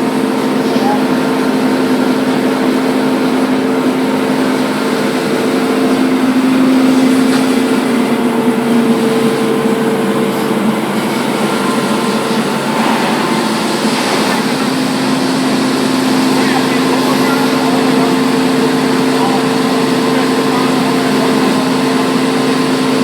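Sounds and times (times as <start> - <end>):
belt sander running: 0.0 - 23.0.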